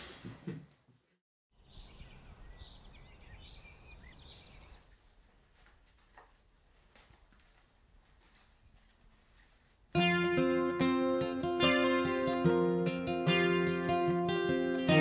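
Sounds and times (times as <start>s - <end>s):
birds chirping: 1.6s - 7.1s, 7.7s - 10.5s
faint rustle: 4.6s - 10.0s.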